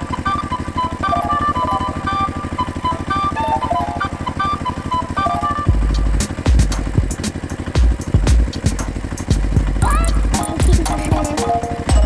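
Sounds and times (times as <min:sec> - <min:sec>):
small engine chugging: 0:00.0 - 0:12.0
deep low thump: 0:05.7 - 0:07.2
jingle-like tune: 0:11.1 - 0:12.0.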